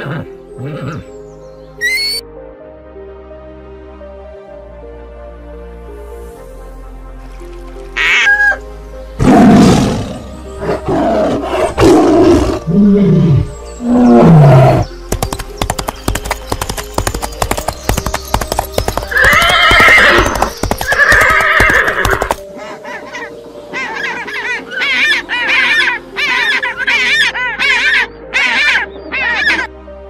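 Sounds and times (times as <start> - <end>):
horse neighing: 0.0 - 1.0, 19.1 - 22.3
soft background music: 0.0 - 30.0.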